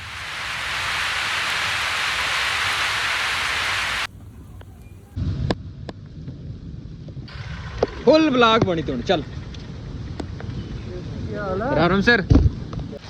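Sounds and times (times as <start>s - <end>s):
heavy rainfall hiss: 0.0s - 5.2s
low rumble: 0.0s - 11.4s.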